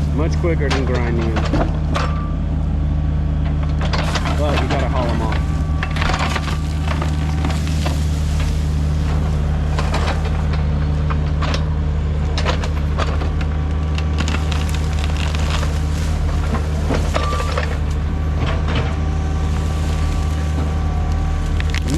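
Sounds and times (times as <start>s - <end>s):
excavator diesel engine: 0.0s - 21.9s
cracking and crunching material: 3.8s - 10.7s, 12.4s - 21.9s.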